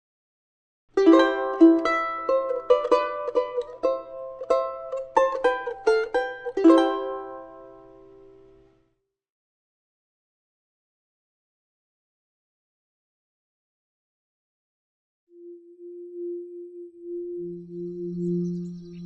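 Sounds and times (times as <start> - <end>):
plucked string instrument: 1.0 - 8.8.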